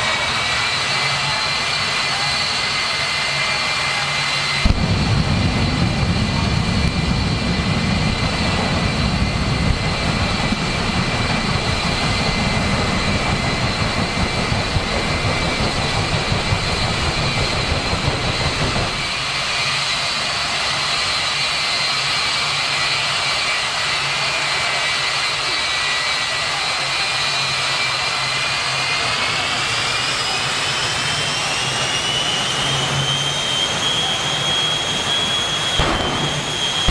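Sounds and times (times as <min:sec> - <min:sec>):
jet turbine engine whine: 0:00.0 - 0:36.9
loud deep rumble: 0:04.2 - 0:19.6, 0:35.7 - 0:36.9.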